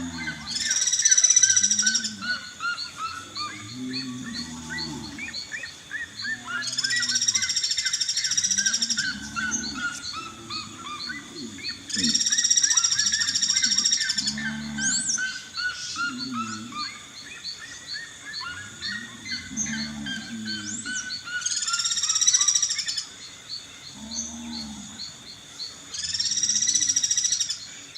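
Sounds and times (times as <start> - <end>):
low hooting calls: 0.0 - 22.8
small birds chirping: 0.0 - 27.9.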